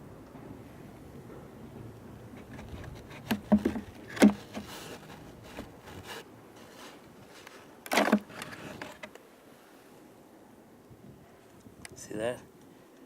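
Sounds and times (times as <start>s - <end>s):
wooden clatter: 1.3s - 9.2s
wooden knocks of beehive frames: 2.4s - 4.7s.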